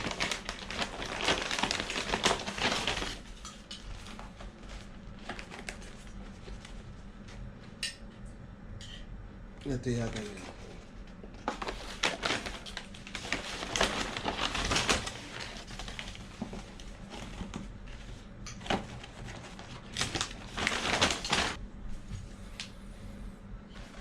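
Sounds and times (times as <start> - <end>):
paper packaging rustling: 0.0 - 7.3, 10.0 - 21.6.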